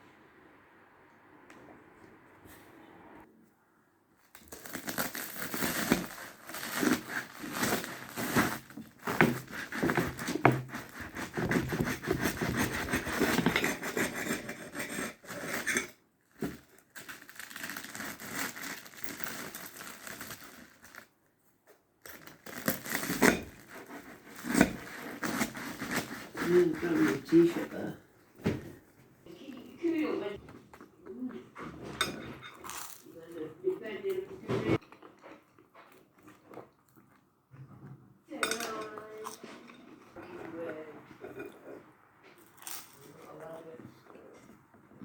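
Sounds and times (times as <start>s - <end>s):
crinkling and tearing: 4.2s - 14.0s, 15.0s - 21.2s, 22.0s - 27.7s.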